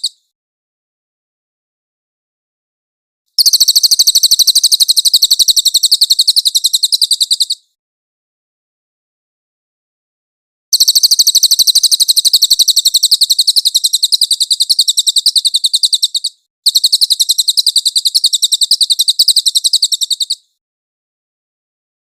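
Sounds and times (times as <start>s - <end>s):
songbird chattering trill: 3.4s - 7.6s, 10.8s - 20.5s.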